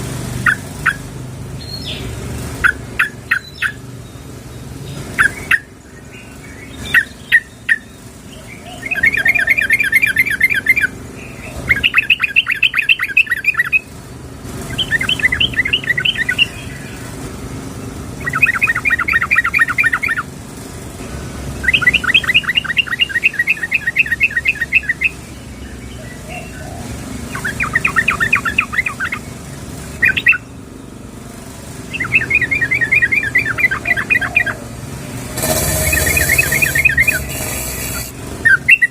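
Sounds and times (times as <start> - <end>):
bird rapid chattering calls: 0.4 - 3.9, 4.9 - 13.9, 18.2 - 20.3, 21.5 - 30.5, 31.8 - 38.9.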